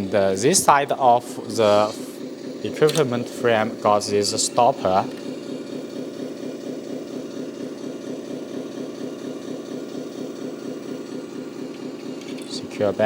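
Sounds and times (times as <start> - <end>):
simulated diesel engine idling: 0.0 - 13.0.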